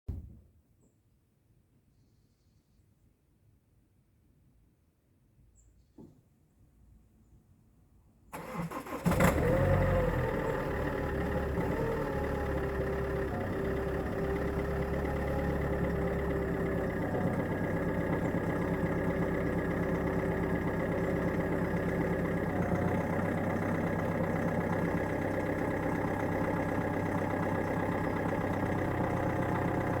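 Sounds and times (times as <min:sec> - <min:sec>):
diesel engine idling: 0:08.4 - 0:30.0.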